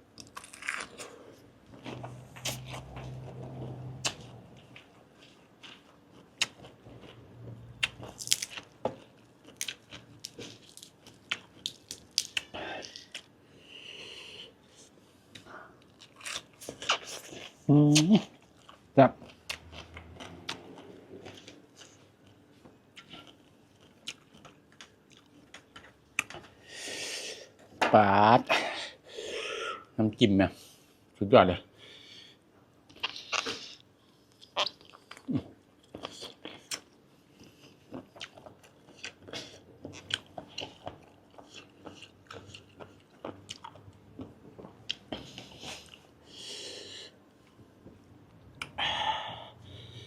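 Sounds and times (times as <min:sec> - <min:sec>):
person chewing: 0:00.2 - 0:03.3, 0:04.0 - 0:26.5, 0:32.9 - 0:46.1.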